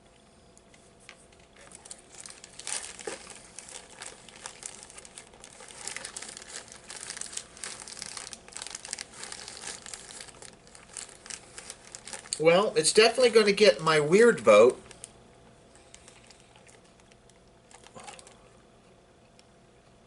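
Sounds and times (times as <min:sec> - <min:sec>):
candy wrapper crinkling: 0:01.4 - 0:12.4, 0:14.1 - 0:15.2, 0:15.8 - 0:18.4.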